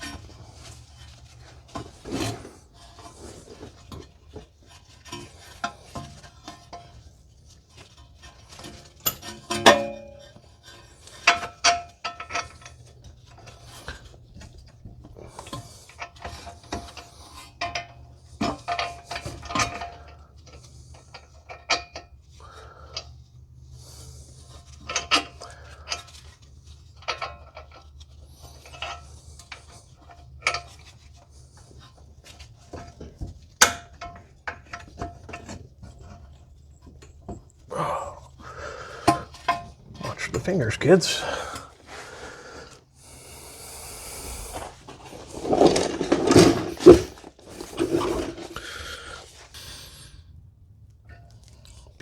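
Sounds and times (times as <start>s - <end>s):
metal tools clinking and clanking: 44.6s - 48.7s.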